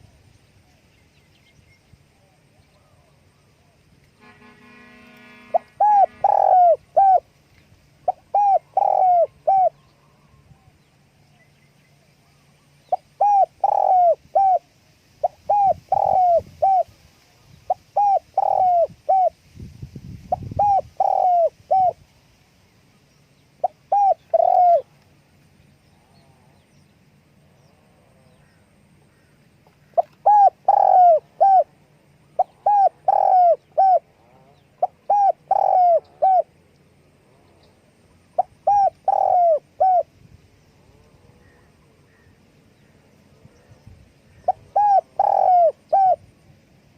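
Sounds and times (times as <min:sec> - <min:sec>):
dove cooing: 0:05.5 - 0:07.3, 0:08.0 - 0:10.6, 0:12.9 - 0:17.0, 0:17.7 - 0:19.4, 0:20.3 - 0:22.0, 0:23.6 - 0:24.9, 0:29.8 - 0:31.8, 0:32.4 - 0:36.6, 0:38.3 - 0:40.1, 0:44.3 - 0:46.3.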